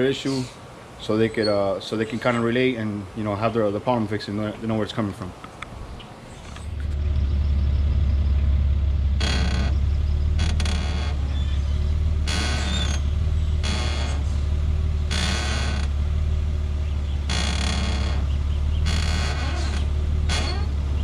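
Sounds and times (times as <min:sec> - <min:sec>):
low engine hum: 0:05.6 - 0:21.0
suspension squeaking: 0:06.3 - 0:21.0.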